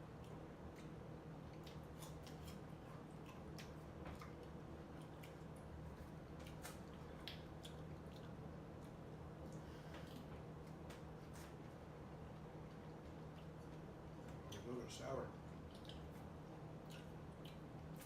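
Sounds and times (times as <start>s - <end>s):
chewing fruit: 0.0s - 18.0s
wet mouth clicks and smacks: 15.6s - 16.2s, 16.8s - 18.0s.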